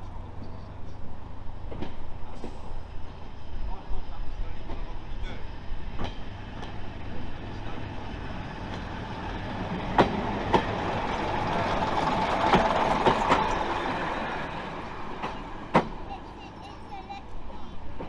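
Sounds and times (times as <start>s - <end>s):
train rumbling: 0.0s - 18.0s
wheels clicking over rail joints: 8.2s - 16.1s.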